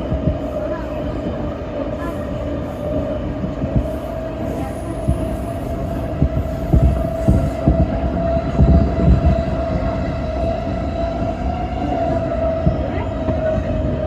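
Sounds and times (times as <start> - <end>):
train rumble: 0.0 - 14.0
low thumps: 5.0 - 13.8.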